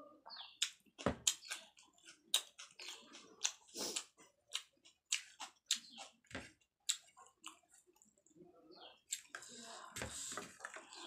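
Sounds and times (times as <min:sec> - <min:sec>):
wet chewing and lip smacks: 0:00.6 - 0:08.3, 0:09.1 - 0:09.5.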